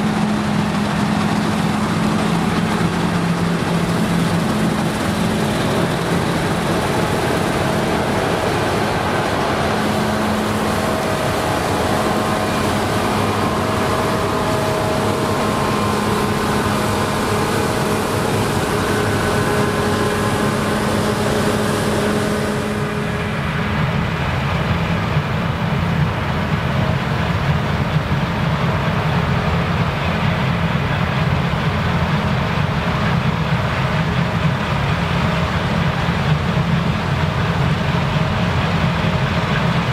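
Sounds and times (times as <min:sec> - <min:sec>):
machine rushing noise: 0:00.0 - 0:26.8
combine harvester engine drone: 0:00.0 - 0:39.9.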